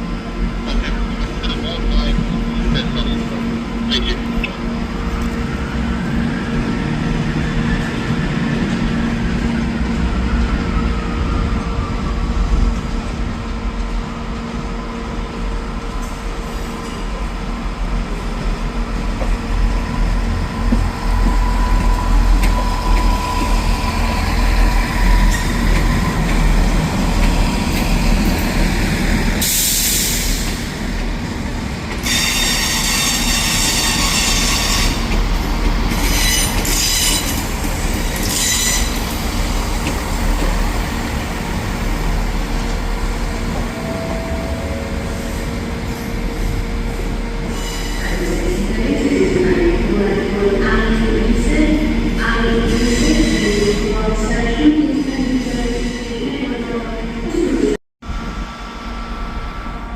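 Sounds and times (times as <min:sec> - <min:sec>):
train rumbling: 0:00.0 - 0:59.9
wheels squealing on rail: 0:32.0 - 0:35.2, 0:35.9 - 0:39.2, 0:47.5 - 0:48.6.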